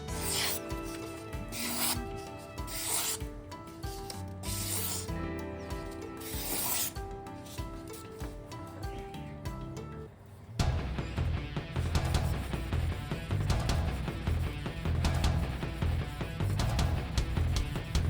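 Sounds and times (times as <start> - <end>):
background music: 0.0 - 18.0
knife sharpened on a whetstone: 0.2 - 2.1, 2.7 - 3.2, 4.1 - 5.1, 6.2 - 7.0.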